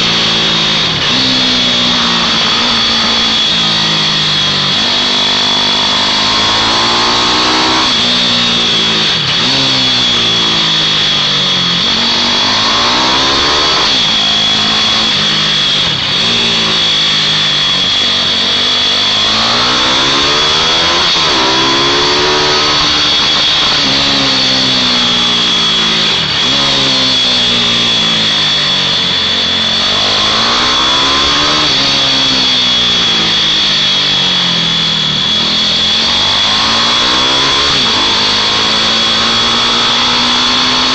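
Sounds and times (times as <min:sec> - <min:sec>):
mini motorbike engines revving: 0:00.0 - 0:40.9
steady high whine: 0:00.0 - 0:40.9.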